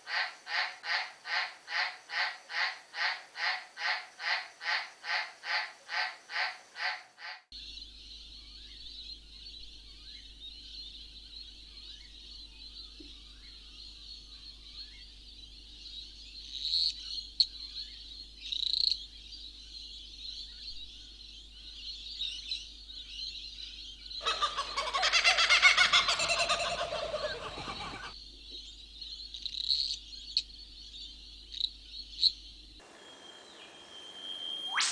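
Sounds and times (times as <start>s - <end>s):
birds chirping and calling: 24.2s - 28.2s
loud harsh animal call: 24.2s - 28.2s, 34.6s - 34.9s
steady high-pitched drone: 32.8s - 34.9s.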